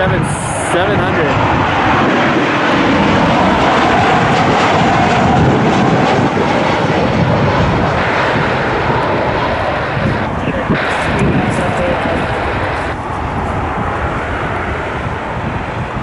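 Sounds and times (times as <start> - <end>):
jet engines passing: 0.0 - 16.0.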